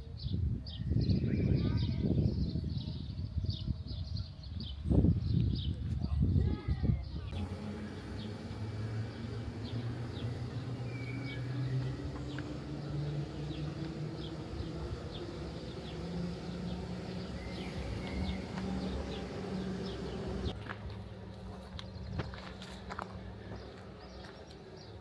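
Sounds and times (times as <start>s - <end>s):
small birds chirping: 7.0s - 20.6s
low hum rising in pitch: 7.3s - 20.6s.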